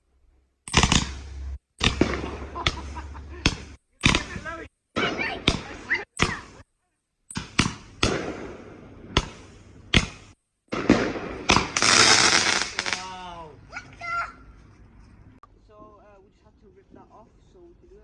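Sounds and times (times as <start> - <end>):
firework bangs: 0.7 - 6.7, 7.3 - 13.5
firework crackling: 0.7 - 6.7, 7.3 - 13.5.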